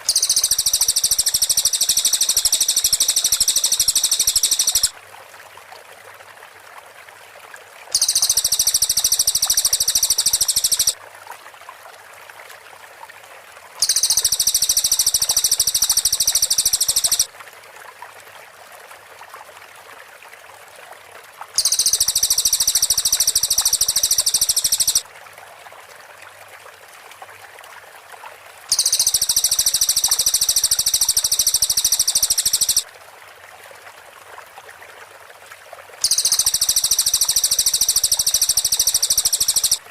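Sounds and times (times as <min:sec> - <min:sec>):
songbird shrill rapid notes: 0:00.0 - 0:04.9, 0:08.0 - 0:11.0, 0:13.8 - 0:17.3, 0:21.6 - 0:25.0, 0:28.7 - 0:32.8, 0:36.0 - 0:39.8
faint background hiss: 0:00.0 - 0:05.7, 0:21.5 - 0:39.9.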